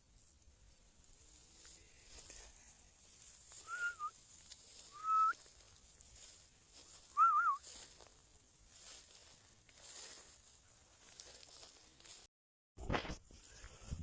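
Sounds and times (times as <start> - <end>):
short whistled notes: 3.6 - 4.2, 4.9 - 5.4, 7.1 - 7.6.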